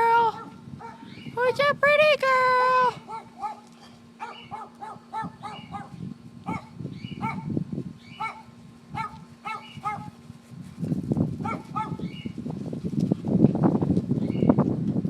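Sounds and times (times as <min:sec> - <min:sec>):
dogs yipping: 0:00.3 - 0:01.3, 0:03.0 - 0:10.2, 0:11.4 - 0:12.4.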